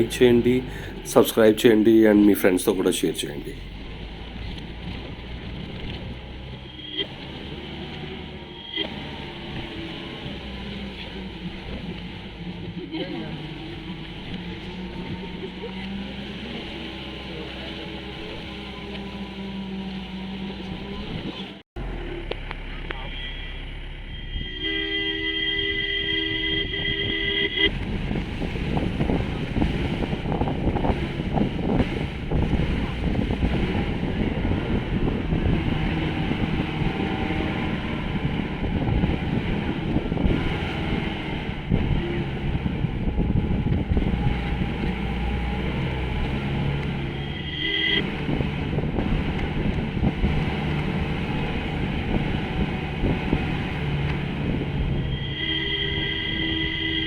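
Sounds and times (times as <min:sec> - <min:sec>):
jeep jolting over rough track: 0:00.0 - 0:24.8, 0:26.0 - 0:57.0
vehicle horn two-note tone: 0:22.9 - 0:27.9, 0:47.0 - 0:49.7, 0:54.9 - 0:57.0
wind buffeting microphone: 0:26.6 - 0:55.3.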